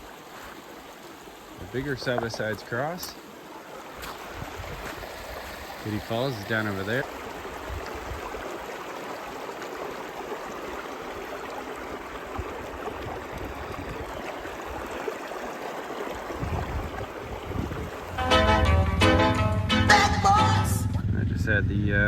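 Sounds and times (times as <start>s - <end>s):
river running over rocks: 0.0s - 18.4s
low rumble: 18.8s - 22.0s.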